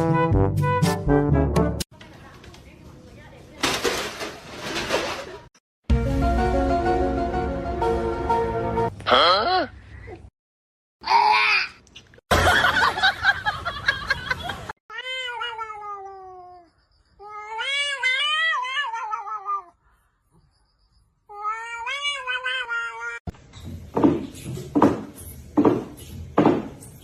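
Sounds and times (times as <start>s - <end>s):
cat yowling: 14.9s - 19.7s, 21.3s - 23.2s.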